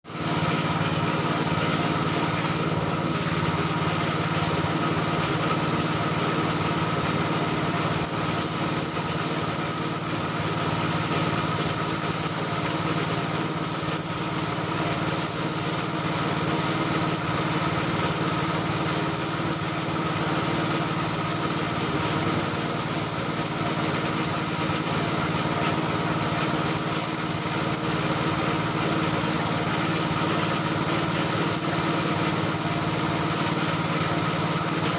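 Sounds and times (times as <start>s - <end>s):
air compressor motor humming: 0.1s - 34.9s
air hissing: 7.9s - 34.9s.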